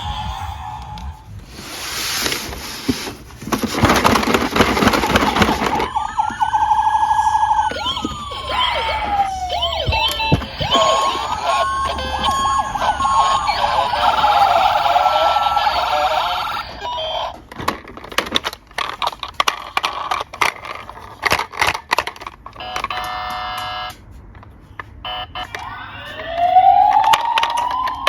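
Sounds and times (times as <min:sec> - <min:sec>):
police sirens: 0:00.0 - 0:01.3, 0:04.8 - 0:17.5, 0:22.6 - 0:24.0, 0:25.0 - 0:28.0
toy cars rattling down a ramp: 0:03.4 - 0:06.0.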